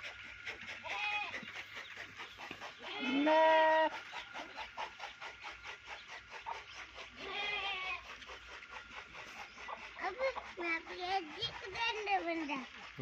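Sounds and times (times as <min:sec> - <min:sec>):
goat bleating: 0:00.8 - 0:01.4, 0:02.8 - 0:04.0, 0:07.2 - 0:08.1.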